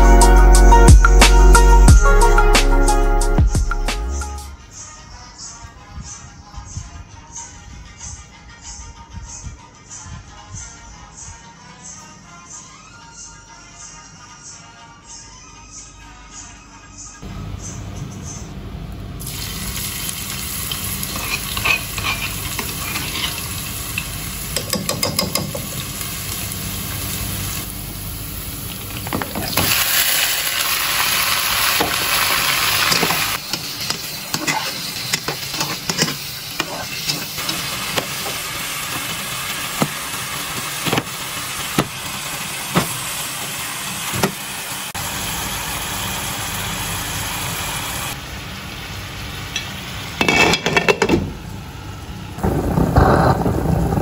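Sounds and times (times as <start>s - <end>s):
hot oil sizzling in pot: 19.2s - 54.0s
metal spatula knocking pot: 24.6s - 25.7s.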